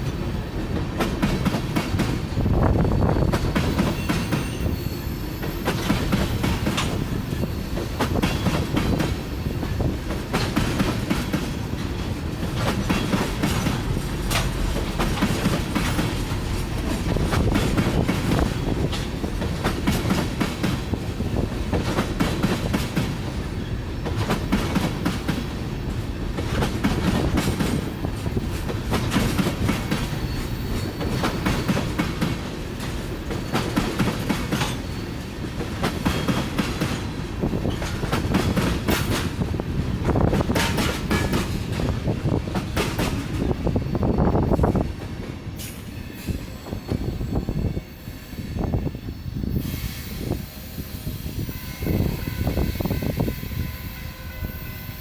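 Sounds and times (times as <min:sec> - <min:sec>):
train wheels rumbling on rail: 0:00.0 - 0:55.0
wheels clicking over rail joints: 0:07.8 - 0:23.4, 0:24.0 - 0:43.6.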